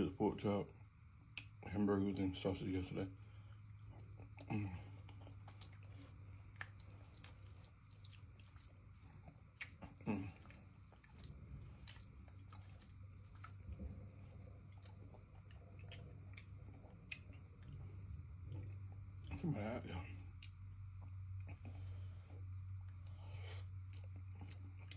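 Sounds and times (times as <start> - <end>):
steady low hum: 0.0 - 24.9
person chewing food: 3.2 - 24.9
wet mouth clicks: 4.0 - 13.8.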